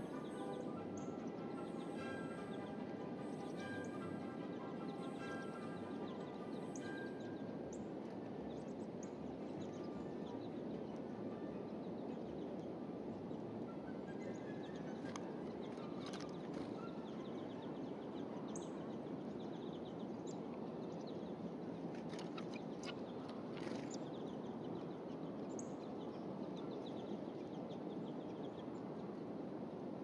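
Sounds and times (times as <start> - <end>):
outdoor background hiss: 0.0 - 15.5
songbirds chirping: 0.0 - 30.0.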